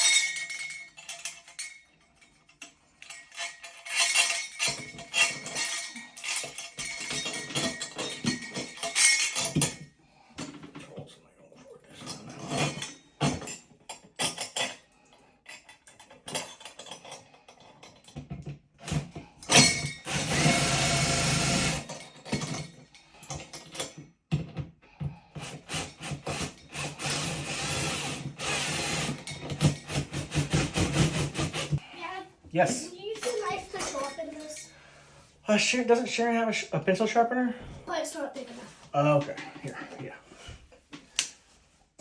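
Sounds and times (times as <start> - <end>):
tools clicking and knocking: 0.0 - 10.9, 12.0 - 31.8
power drill running: 19.5 - 21.9, 25.4 - 31.8.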